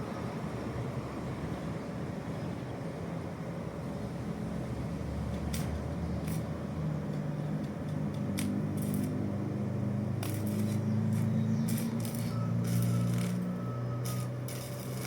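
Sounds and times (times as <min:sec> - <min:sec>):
low mechanical hum: 0:04.0 - 0:15.0.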